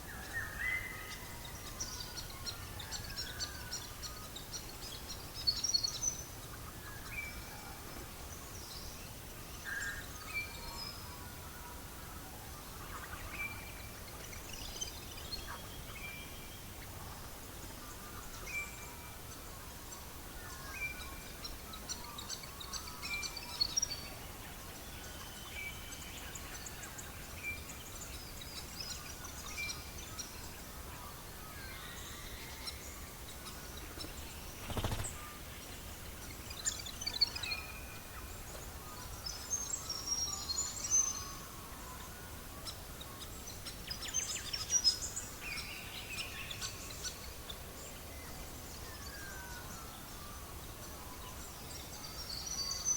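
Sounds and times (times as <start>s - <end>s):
steady low hiss: 0.0s - 52.9s
birds singing and chirping: 12.5s - 52.9s.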